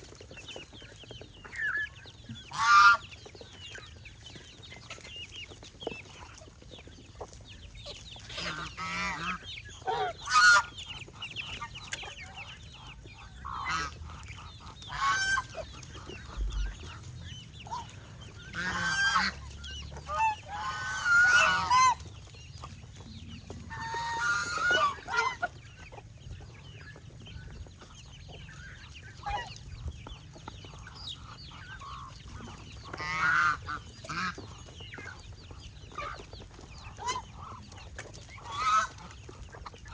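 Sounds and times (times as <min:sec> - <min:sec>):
geese honking: 0:01.5 - 0:03.2, 0:07.9 - 0:22.7, 0:23.4 - 0:26.0, 0:30.7 - 0:35.2, 0:35.9 - 0:39.9.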